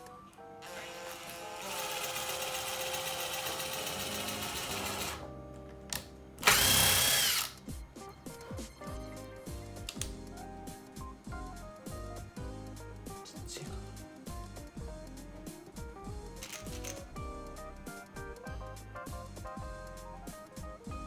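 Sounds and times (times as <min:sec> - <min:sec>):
background music: 0:00.0 - 0:21.0
power drill driving screws into wood: 0:00.6 - 0:05.2, 0:06.4 - 0:07.6.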